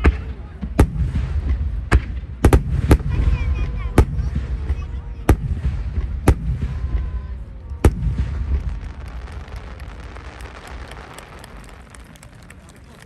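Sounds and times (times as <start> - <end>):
fireworks bangs: 0.0 - 13.0
fireworks crackles: 5.6 - 13.0.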